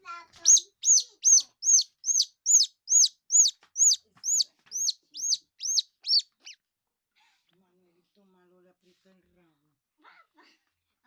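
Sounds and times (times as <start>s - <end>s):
baby squirrel chirping: 0.1s - 6.6s.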